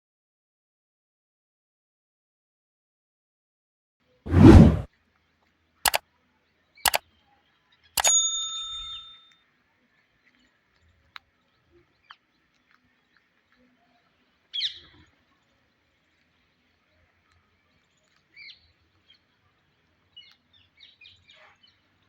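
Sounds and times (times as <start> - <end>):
short burst of noise: 4.3 - 4.9
metallic ding: 8.0 - 8.8.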